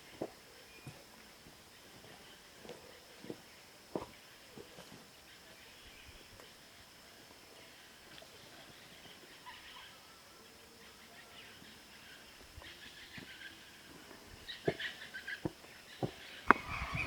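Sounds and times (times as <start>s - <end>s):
small birds chirping: 7.6s - 17.0s
steady thin high tone: 16.5s - 17.0s.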